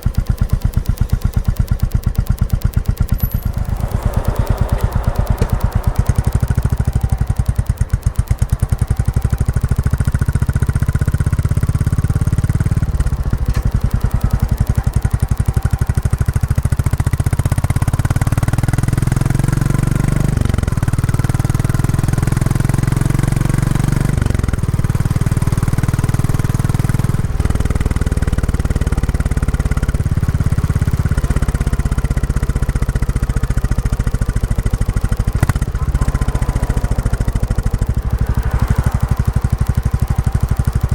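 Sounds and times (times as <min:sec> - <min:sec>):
motorcycle engine thumping: 0:00.0 - 0:18.0, 0:26.6 - 0:40.9.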